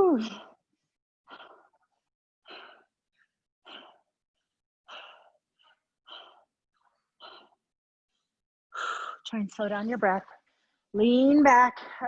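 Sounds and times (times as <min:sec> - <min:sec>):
person breathing hard: 0:00.3 - 0:09.3.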